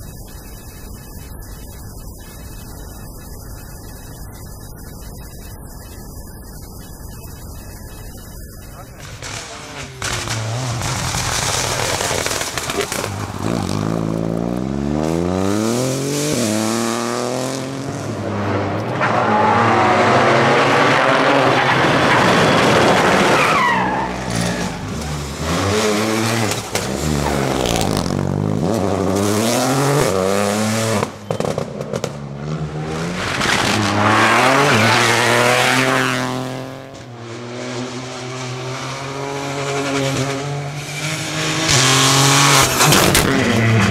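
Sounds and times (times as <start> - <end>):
tyre and road noise rush: 8.6 - 43.9
rally car engine revving: 9.0 - 43.9
tyre squeal: 18.9 - 28.1.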